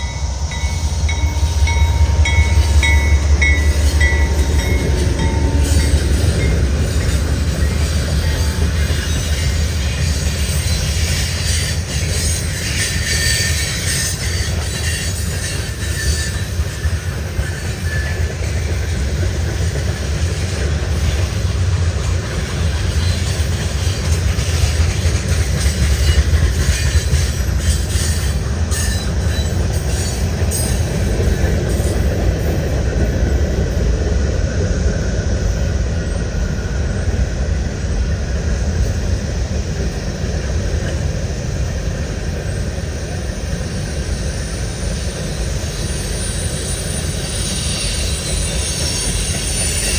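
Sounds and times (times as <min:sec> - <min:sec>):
clicks of train wheels: 0:00.0 - 0:37.2, 0:37.8 - 0:49.9
train wheels rumbling on rail: 0:00.0 - 0:49.9.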